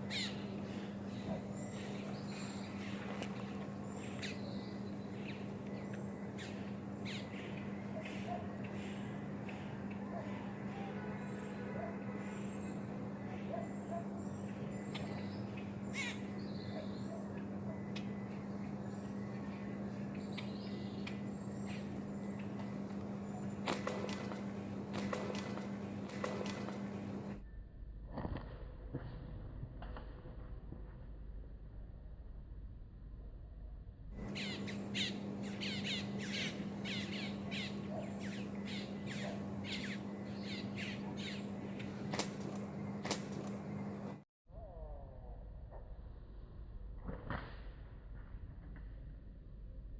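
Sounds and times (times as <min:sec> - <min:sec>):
harsh wavering bird call: 0:00.0 - 0:03.1, 0:06.1 - 0:18.2, 0:34.2 - 0:42.0
steady low hum: 0:00.0 - 0:49.9.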